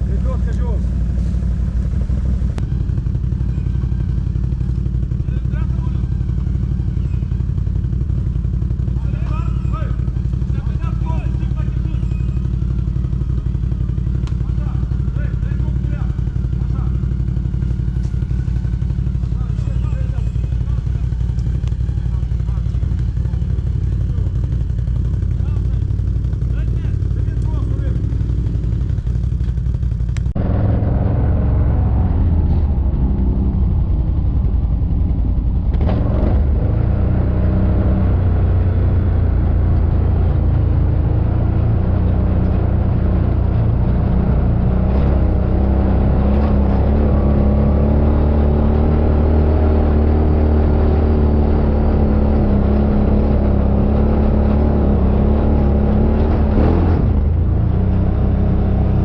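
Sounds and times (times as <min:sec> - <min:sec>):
quad bike engine revving: 0:30.2 - 0:59.0.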